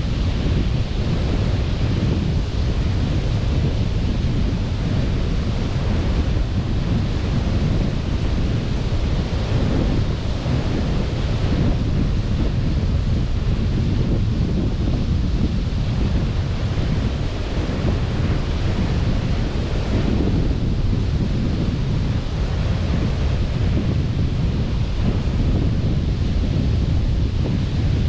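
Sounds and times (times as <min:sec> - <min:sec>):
waves washing onto beach: 0:00.0 - 0:28.0
wind buffeting microphone: 0:00.0 - 0:28.0.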